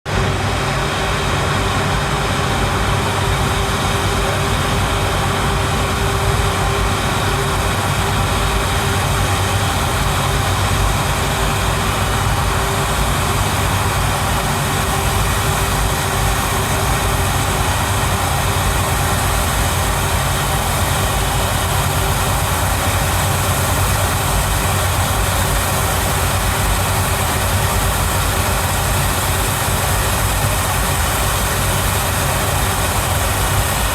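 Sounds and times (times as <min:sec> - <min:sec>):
jet engines idling: 0:00.1 - 0:33.9.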